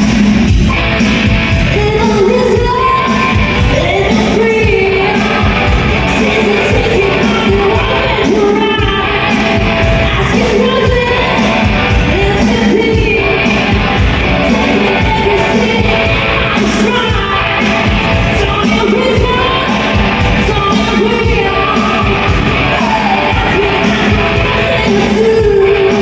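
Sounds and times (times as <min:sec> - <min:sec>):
loud accompaniment with beat: 0:00.0 - 0:26.0
woman singing pop song: 0:01.6 - 0:26.0.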